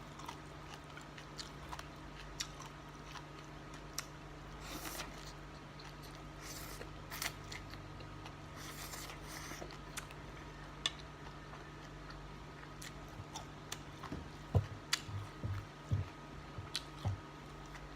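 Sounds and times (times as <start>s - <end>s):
soft crunchy eating sounds: 0.0s - 17.9s
steady low hum: 0.0s - 17.9s
soft chewing thumps: 10.8s - 17.9s.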